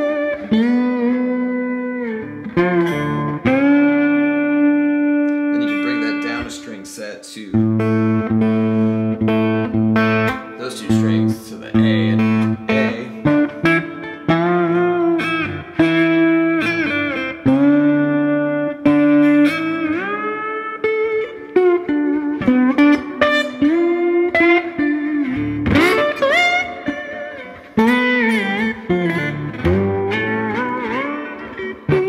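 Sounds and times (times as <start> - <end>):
electric slide guitar: 0.0 - 32.0.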